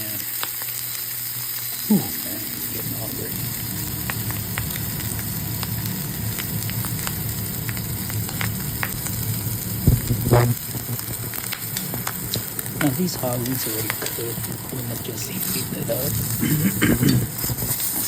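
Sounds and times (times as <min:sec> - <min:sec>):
sausage sizzling in a frying pan: 0:00.0 - 0:18.0.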